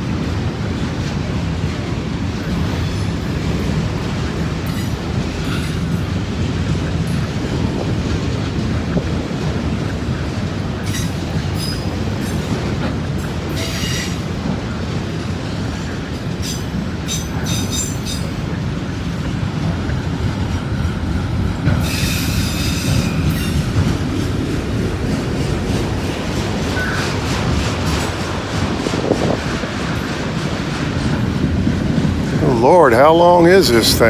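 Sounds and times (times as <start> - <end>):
freight train wheels rumbling: 0.0 - 34.0
train wheel squeals: 2.5 - 6.2, 10.8 - 14.6, 16.0 - 18.7, 21.7 - 24.4, 26.5 - 31.2.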